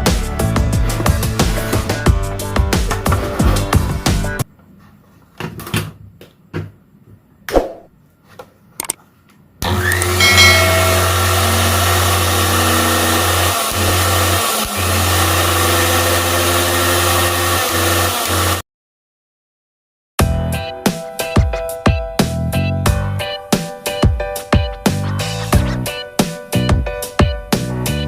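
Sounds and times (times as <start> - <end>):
mixer grinder motor running: 9.6 - 18.6.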